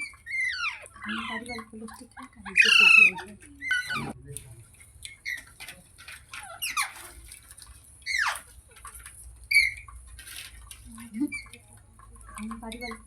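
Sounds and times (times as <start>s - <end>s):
parrot squeaky chirps: 0.0s - 1.4s, 2.5s - 4.2s, 8.0s - 8.5s.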